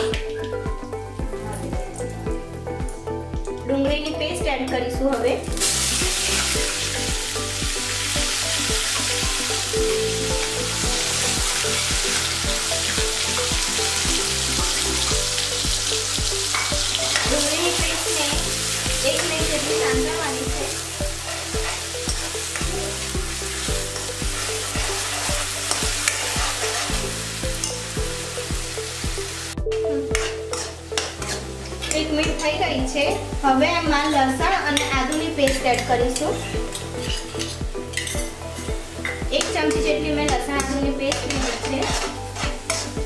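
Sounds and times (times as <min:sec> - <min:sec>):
paste sizzling in hot oil: 0:05.5 - 0:29.6, 0:34.3 - 0:43.0
metal spoon scraping pan: 0:21.2 - 0:22.8, 0:24.0 - 0:27.8, 0:30.1 - 0:32.2, 0:34.0 - 0:43.0.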